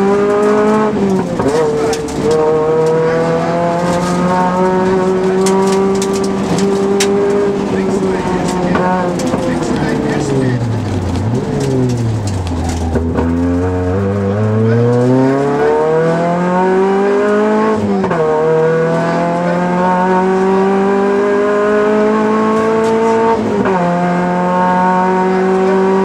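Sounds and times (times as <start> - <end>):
car engine accelerating through gears: 0.0 - 26.0.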